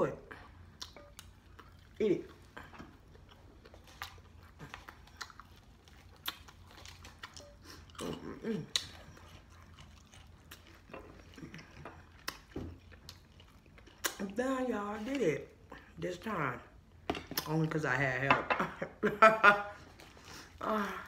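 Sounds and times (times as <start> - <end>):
chewing with wet mouth clicks: 0.4 - 14.4.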